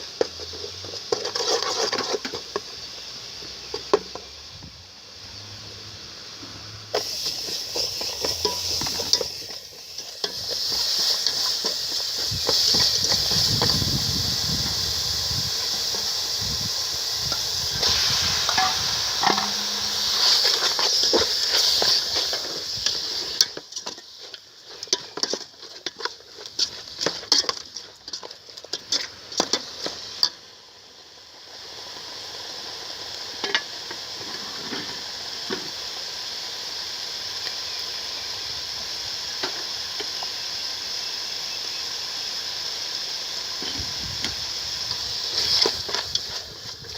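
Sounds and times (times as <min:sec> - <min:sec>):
food sizzling in a pan: 0:00.0 - 0:46.9.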